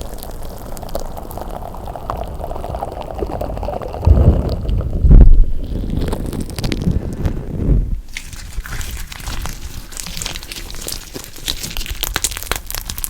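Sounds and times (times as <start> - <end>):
slime squished by hand: 4.0 - 13.0.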